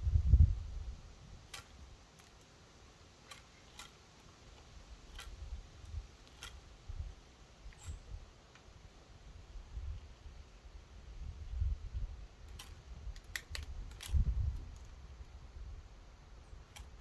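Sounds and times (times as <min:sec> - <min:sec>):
birds pecking on wood: 0:01.4 - 0:08.8, 0:12.4 - 0:15.4, 0:16.5 - 0:17.0.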